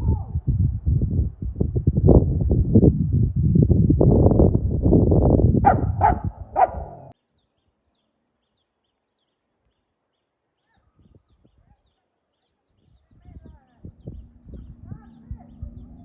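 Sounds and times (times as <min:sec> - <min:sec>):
dog barking: 0:05.6 - 0:07.2
faint high bird chirps: 0:07.2 - 0:16.0.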